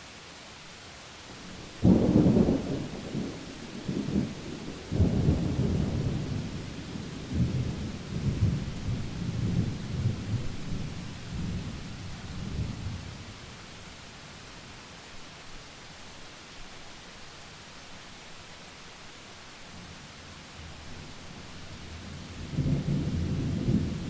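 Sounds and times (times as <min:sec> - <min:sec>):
rain hiss: 0:00.0 - 0:24.0
thunder rumbling: 0:01.5 - 0:13.1, 0:22.3 - 0:24.0.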